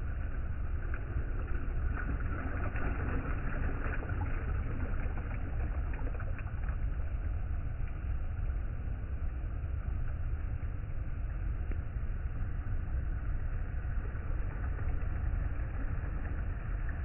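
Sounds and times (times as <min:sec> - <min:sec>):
faint small splashes: 0:00.0 - 0:08.0
low rumble: 0:00.0 - 0:17.0.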